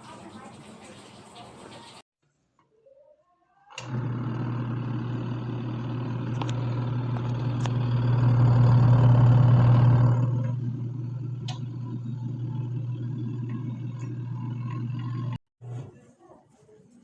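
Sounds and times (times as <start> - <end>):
washing machine motor humming: 3.7 - 15.4.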